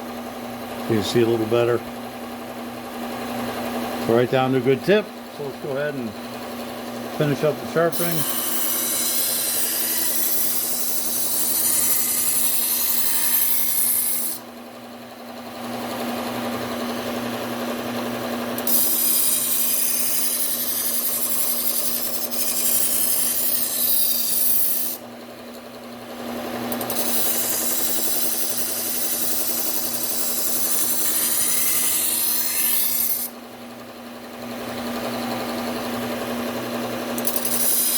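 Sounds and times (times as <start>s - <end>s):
belt sander motor hum: 0.0s - 37.9s
knife grinding on sanding belt: 7.2s - 14.4s, 18.6s - 25.0s, 26.7s - 33.3s, 37.2s - 37.9s.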